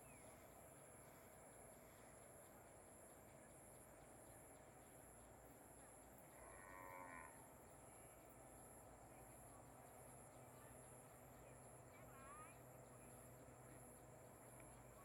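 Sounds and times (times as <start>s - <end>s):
distant cow mooing: 6.5s - 7.4s.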